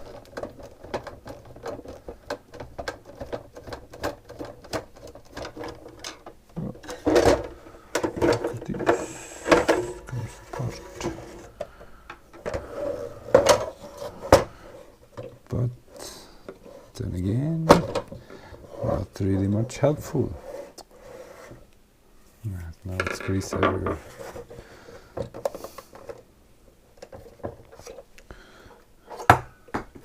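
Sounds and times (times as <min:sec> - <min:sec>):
plastic parts knocking: 0:00.0 - 0:15.5, 0:17.4 - 0:19.8, 0:22.9 - 0:26.2, 0:29.1 - 0:30.0.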